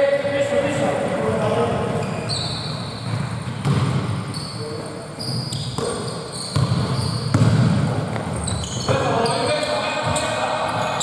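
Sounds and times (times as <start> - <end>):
short high squeaks: 2.0 - 3.0, 4.3 - 7.3, 8.4 - 9.7
basketball bouncing on a court: 3.0 - 4.3, 5.6 - 9.1.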